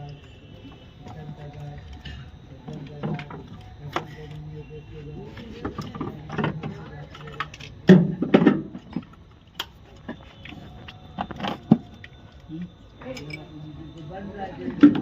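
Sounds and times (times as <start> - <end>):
indistinct voices: 0.0 - 15.0
metallic clinks of tools: 13.0 - 13.6.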